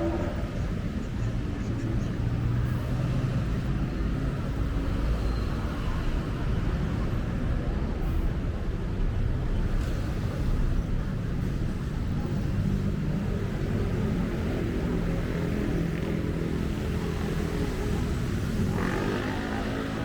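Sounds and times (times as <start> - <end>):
engine hum: 0.0 - 4.4
road traffic rumble: 0.0 - 20.0.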